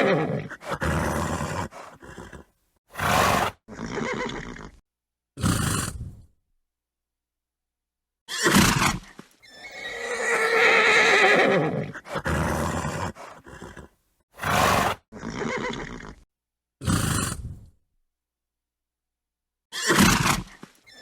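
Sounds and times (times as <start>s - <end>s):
horse neighing: 0.0s - 4.8s, 9.4s - 16.2s
horse snorting: 0.0s - 4.8s, 5.4s - 6.2s, 8.4s - 16.2s, 16.8s - 17.7s.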